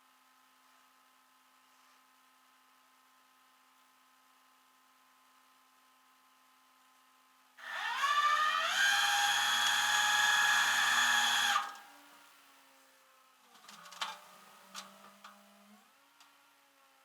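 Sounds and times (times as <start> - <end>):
small electric motor whining: 7.6 - 12.3.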